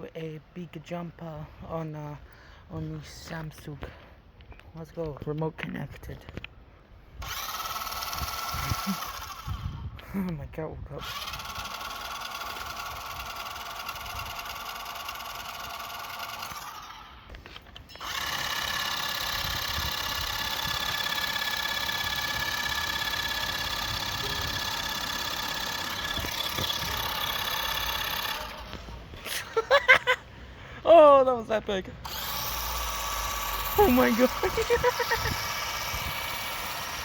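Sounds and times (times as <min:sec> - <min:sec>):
electric motor whining: 0:07.2 - 0:09.9, 0:11.0 - 0:29.7, 0:32.0 - 0:37.0.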